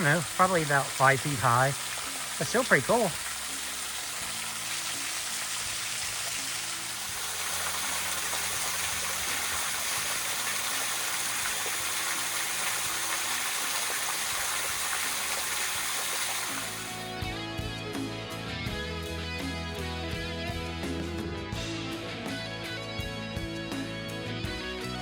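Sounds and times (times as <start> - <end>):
waterfall rushing: 0.0 - 17.2
background music: 0.0 - 25.0.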